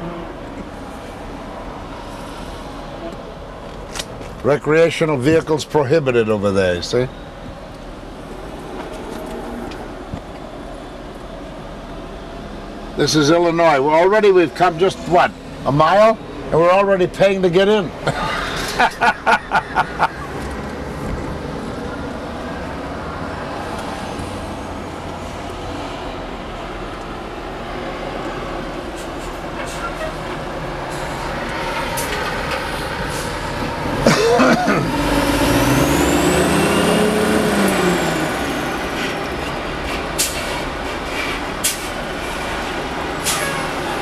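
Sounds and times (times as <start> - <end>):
bus engine running: 17.9 - 44.0.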